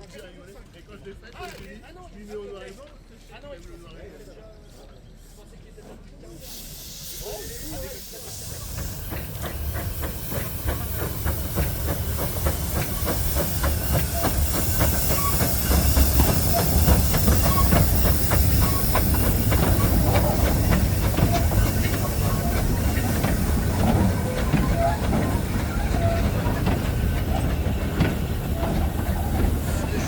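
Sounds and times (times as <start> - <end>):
train rumbling: 4.5 - 30.0
steam locomotive hissing: 6.2 - 30.0.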